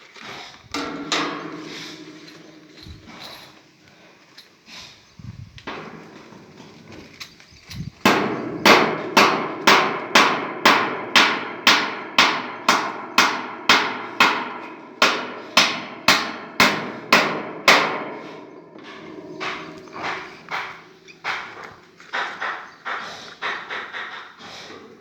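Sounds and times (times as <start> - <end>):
hammer blows ringing: 0.8 - 3.4, 8.1 - 24.4.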